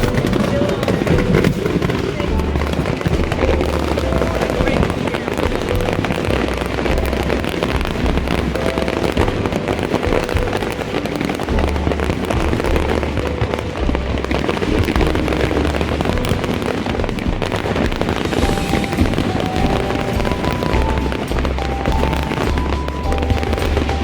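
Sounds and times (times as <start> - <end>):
deep fireworks booms: 0.0 - 24.0
fireworks crackling and popping: 0.0 - 24.0.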